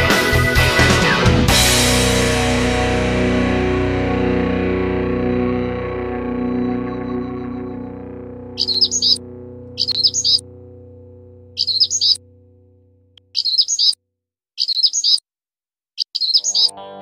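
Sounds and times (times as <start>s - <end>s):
music track chord: 1.5s - 13.2s
small bird chirping: 8.6s - 9.2s, 9.8s - 10.4s, 11.6s - 12.2s, 13.2s - 14.0s, 14.6s - 15.2s, 16.0s - 16.7s.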